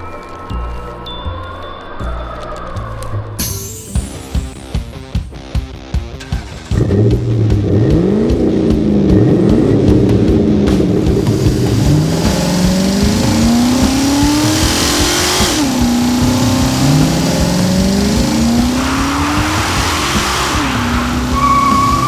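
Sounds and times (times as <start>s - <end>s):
car engine accelerating: 6.2s - 22.0s.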